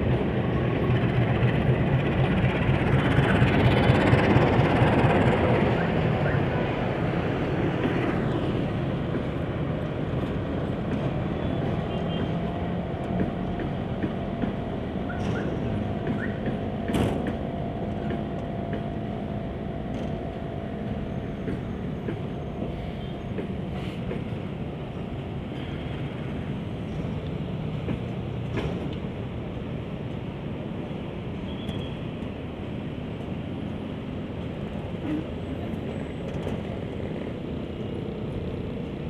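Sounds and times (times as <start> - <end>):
train rumbling on rails: 0.0 - 39.0
faint steady squeal: 20.0 - 23.4, 31.4 - 32.1.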